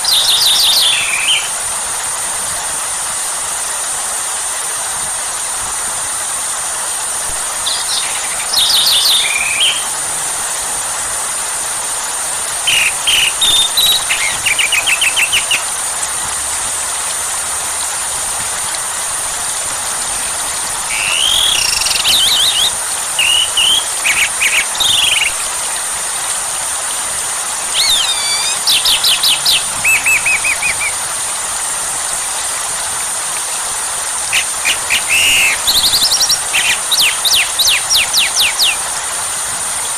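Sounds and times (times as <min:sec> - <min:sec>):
songbird chirping and trilling: 0:00.0 - 0:01.5, 0:07.6 - 0:09.9, 0:12.7 - 0:15.6, 0:20.9 - 0:25.4, 0:27.7 - 0:30.9, 0:34.3 - 0:38.8
steady rain hiss: 0:00.0 - 0:39.9.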